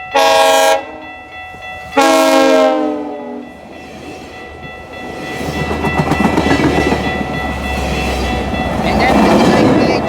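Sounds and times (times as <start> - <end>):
rumble of passing train: 0.0 - 10.0
train air horn: 0.2 - 1.0, 2.0 - 3.4.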